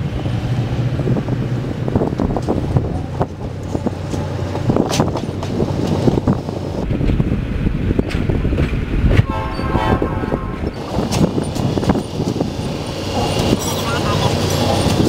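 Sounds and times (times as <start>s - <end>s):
railcars rolling past: 0.0s - 15.0s
train horn chord: 9.2s - 10.8s.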